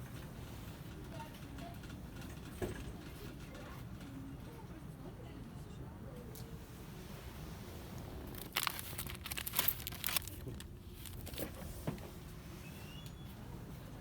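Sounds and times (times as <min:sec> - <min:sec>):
low background hum: 0:00.0 - 0:14.0
plastic packaging crinkling: 0:08.3 - 0:11.6.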